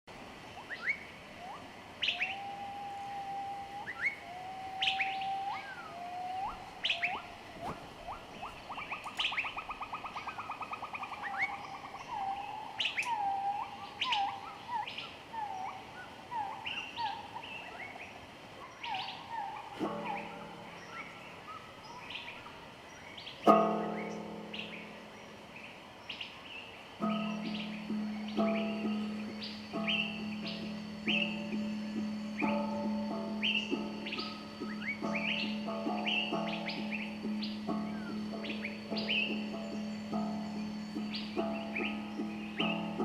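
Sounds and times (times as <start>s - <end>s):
birds chirping and whistling: 0.5s - 25.4s, 27.0s - 43.0s
low sustained musical note: 1.4s - 14.4s, 19.1s - 22.1s, 23.5s - 25.8s, 27.0s - 43.0s.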